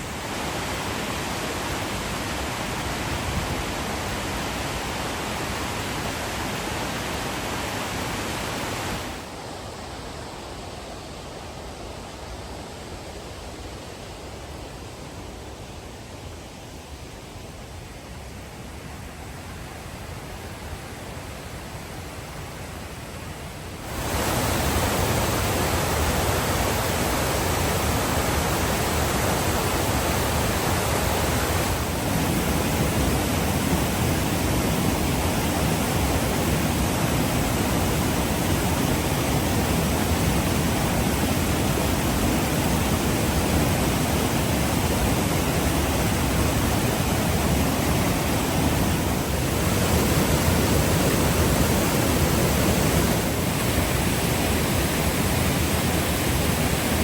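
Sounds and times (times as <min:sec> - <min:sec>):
roar of white water: 0:23.8 - 0:57.0.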